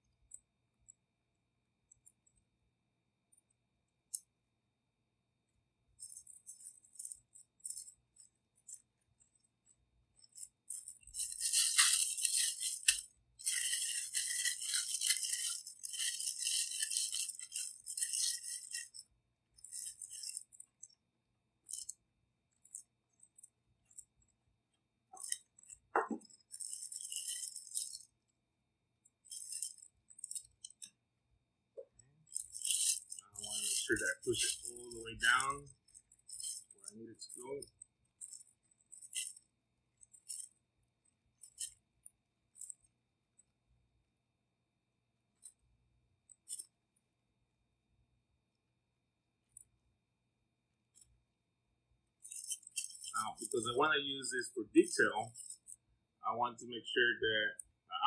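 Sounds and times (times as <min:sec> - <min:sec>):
plastic piping bag crinkling: 0:11.4 - 0:18.5.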